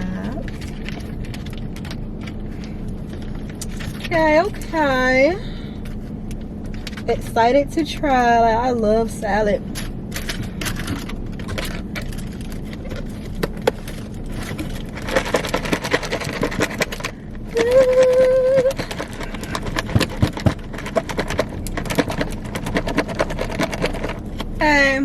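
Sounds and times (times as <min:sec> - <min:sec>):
faint steady hum: 0:00.0 - 0:25.0
crunching and chewing: 0:00.4 - 0:04.0, 0:09.9 - 0:24.6.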